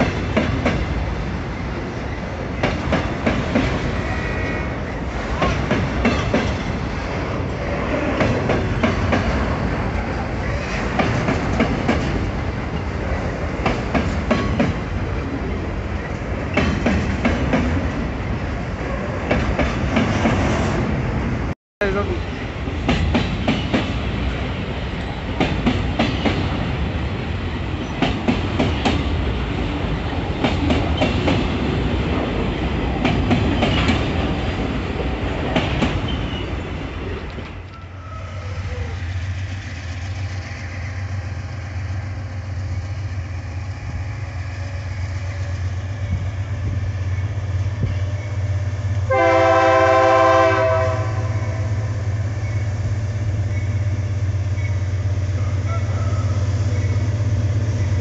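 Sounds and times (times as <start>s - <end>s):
train wheels clacking over rail joints: 0.0s - 1.0s, 2.5s - 14.9s, 16.0s - 18.0s, 22.8s - 24.1s, 25.3s - 26.7s, 27.8s - 29.3s, 30.2s - 36.4s
diesel locomotive drone: 0.0s - 58.0s
locomotive horn: 49.1s - 51.9s.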